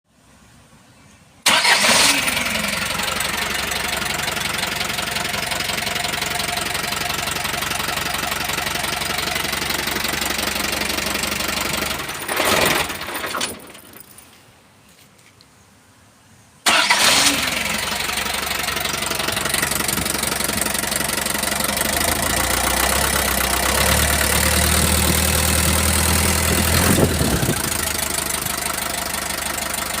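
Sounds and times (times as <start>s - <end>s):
diesel engine knocking: 2.8s - 12.2s, 17.8s - 30.0s.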